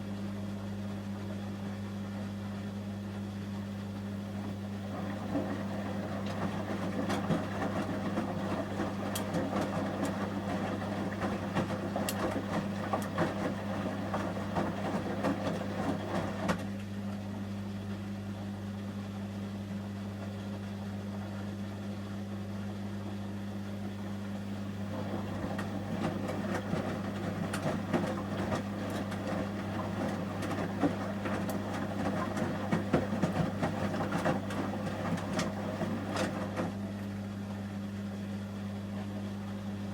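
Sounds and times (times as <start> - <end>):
washing machine drum tumbling: 4.4 - 16.8, 24.6 - 37.0
water sloshing: 24.8 - 36.9.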